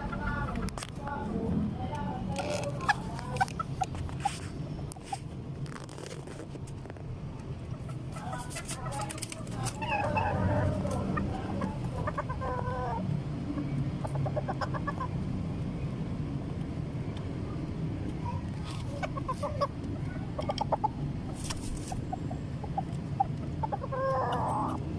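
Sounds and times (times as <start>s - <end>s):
chickens clucking: 0.0s - 1.2s, 2.4s - 5.3s, 7.6s - 15.2s, 18.0s - 24.9s.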